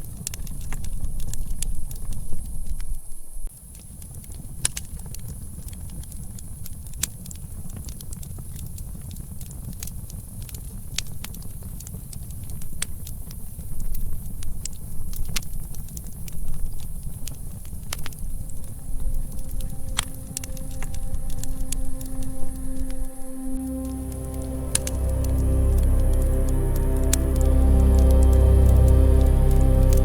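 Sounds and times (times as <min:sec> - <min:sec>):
campfire crackling: 0:03.7 - 0:30.0
low rumble: 0:18.2 - 0:30.0.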